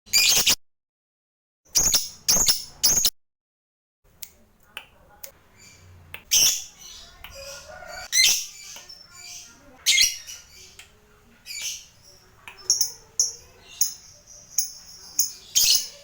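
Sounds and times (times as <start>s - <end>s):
bird chatter and clicks: 4.3s - 16.0s.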